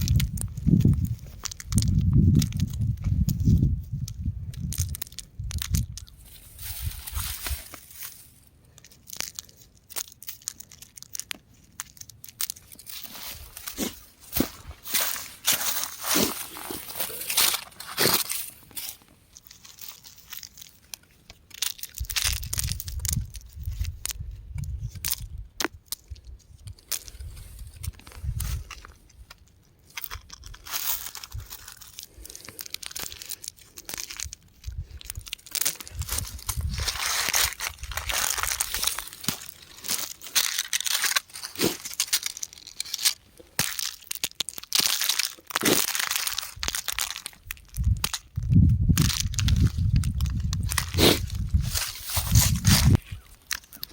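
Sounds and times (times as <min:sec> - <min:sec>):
rock crumbling and crunching: 0:00.0 - 0:53.9
sharp rock cracks: 0:35.0 - 0:53.9.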